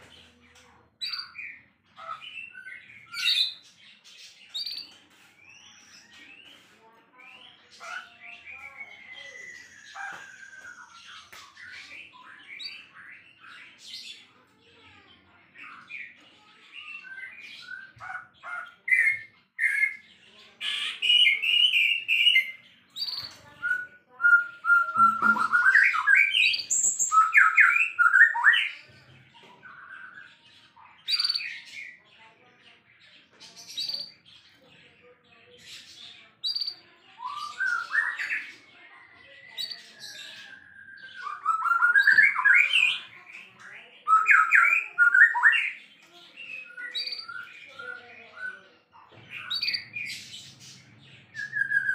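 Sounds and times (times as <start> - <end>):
songbird singing whistled phrases: 8.3 - 13.2, 20.7 - 28.8, 36.4 - 38.5, 39.5 - 43.4, 44.0 - 45.8, 46.4 - 47.7, 51.4 - 51.9.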